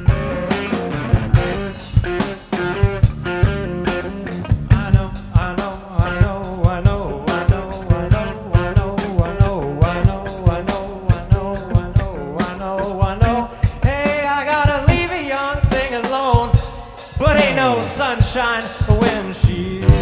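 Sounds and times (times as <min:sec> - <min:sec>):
bending lead melody: 0:00.0 - 0:05.3
blues-rock band playing: 0:00.0 - 0:20.0
drum kit beat: 0:00.0 - 0:20.0.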